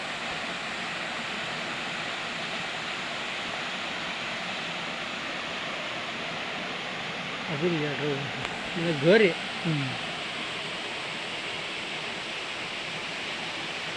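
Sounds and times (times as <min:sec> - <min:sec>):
running water rushing: 0:00.0 - 0:13.9.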